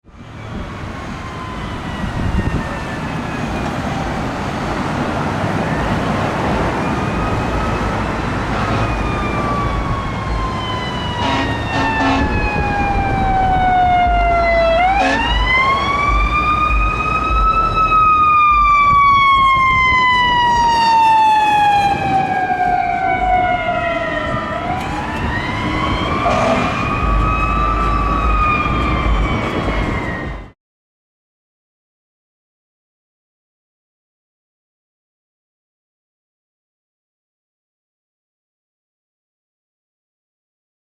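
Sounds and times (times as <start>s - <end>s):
fire truck siren wailing: 0.0s - 30.6s
low engine rumble: 12.2s - 19.3s.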